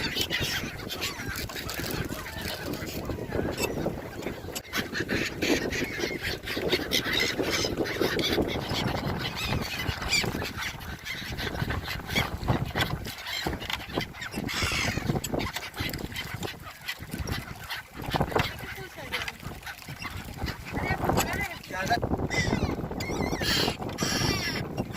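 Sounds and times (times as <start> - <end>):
gulls squawking: 0.0 - 24.9.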